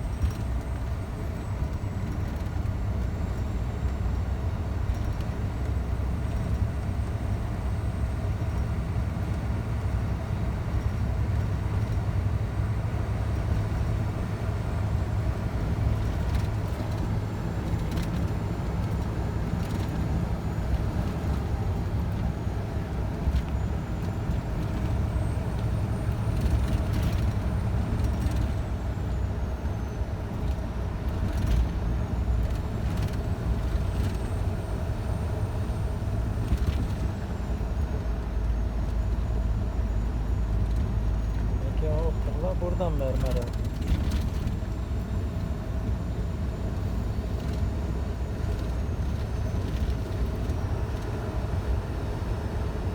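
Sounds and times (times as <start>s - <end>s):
road noise: 0.0s - 52.9s
truck engine drone: 0.0s - 52.9s.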